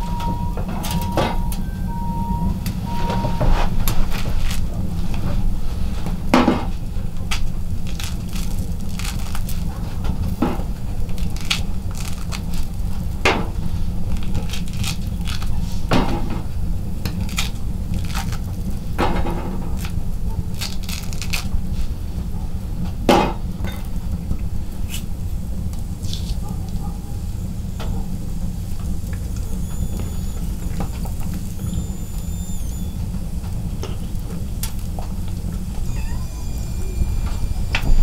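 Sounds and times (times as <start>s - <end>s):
stove fire crackling: 0.0s - 38.0s.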